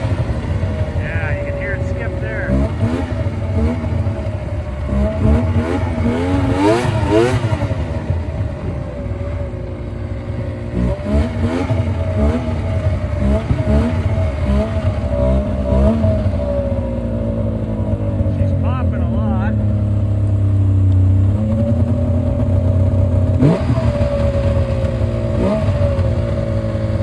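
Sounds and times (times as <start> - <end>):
snowmobile engine revving: 0.0 - 9.2, 10.3 - 20.1, 21.0 - 27.0.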